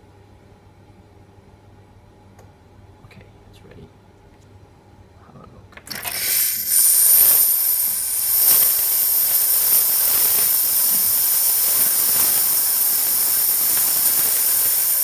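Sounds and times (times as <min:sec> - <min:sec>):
steam hissing from pipe: 0:06.0 - 0:15.0.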